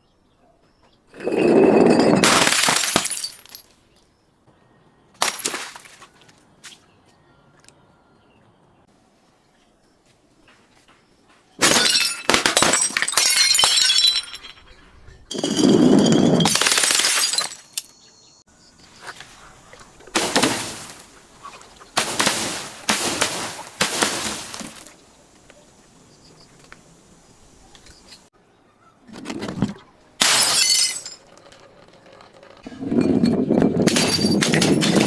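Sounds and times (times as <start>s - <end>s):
glass smashing and shattering: 1.2s - 3.7s, 5.2s - 6.0s, 11.6s - 14.7s, 15.3s - 18.0s, 20.2s - 21.1s, 22.0s - 25.0s, 30.2s - 31.4s, 33.8s - 35.0s.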